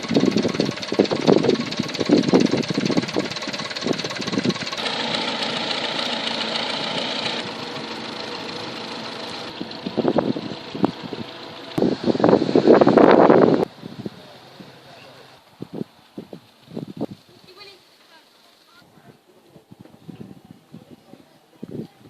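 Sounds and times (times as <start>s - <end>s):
stationary engines running: 0.0s - 13.7s.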